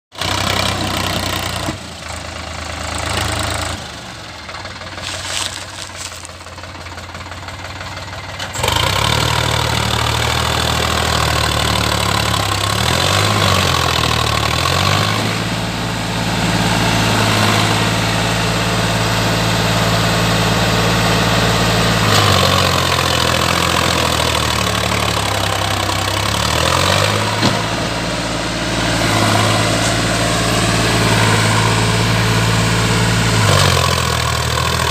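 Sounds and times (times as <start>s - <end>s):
tractor diesel engine revving: 0.1s - 34.9s.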